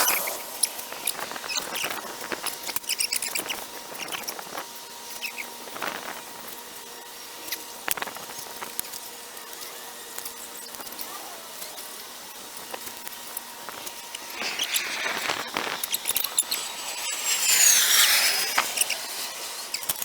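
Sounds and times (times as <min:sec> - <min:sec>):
sharp loud strokes: 0:00.0 - 0:01.6, 0:14.1 - 0:20.0
short squeaks: 0:14.2 - 0:20.0.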